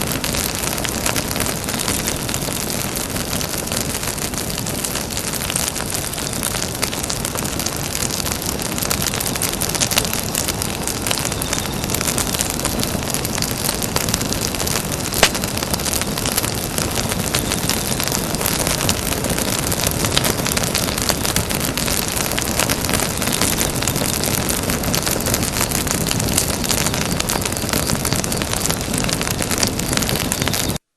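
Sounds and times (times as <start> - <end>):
hiss of flames: 0.0 - 30.8
burning wood crackling: 0.0 - 30.9
sharp pop of fire: 7.6 - 30.8.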